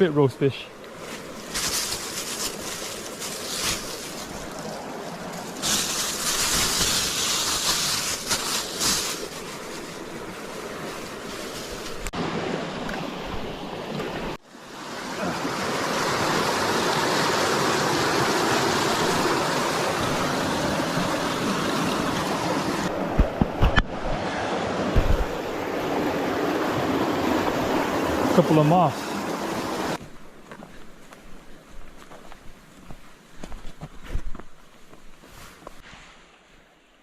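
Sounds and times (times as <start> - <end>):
creek water rushing: 0.0 - 30.0.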